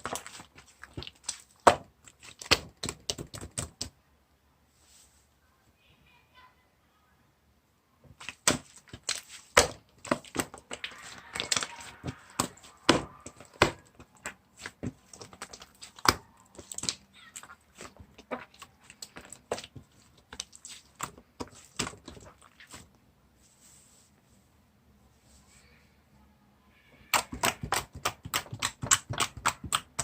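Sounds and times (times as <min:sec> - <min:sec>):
slime squished by hand: 0:00.0 - 0:03.9, 0:08.2 - 0:22.9, 0:27.1 - 0:30.0.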